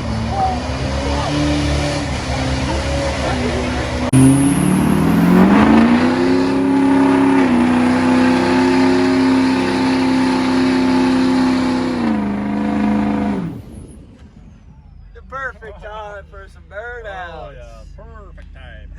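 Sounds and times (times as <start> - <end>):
diesel truck engine revving: 0.0 - 14.2.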